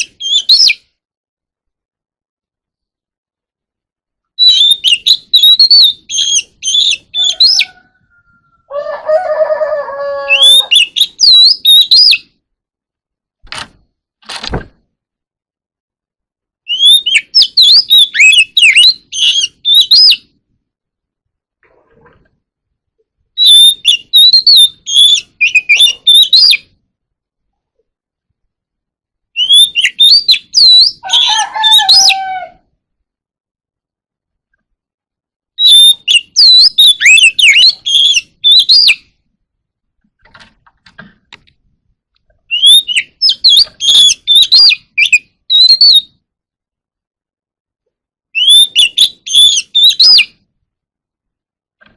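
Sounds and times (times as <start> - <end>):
bird singing whistles and chirps: 0.0 - 0.9, 4.4 - 8.6, 10.1 - 12.3, 16.7 - 20.3, 23.4 - 26.7, 29.4 - 32.4, 35.6 - 39.1, 42.5 - 46.2, 48.4 - 50.4.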